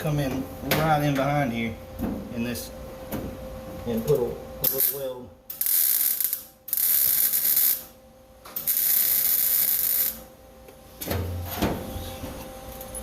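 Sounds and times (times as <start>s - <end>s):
welding arc crackling: 4.6s - 8.0s, 8.6s - 10.3s.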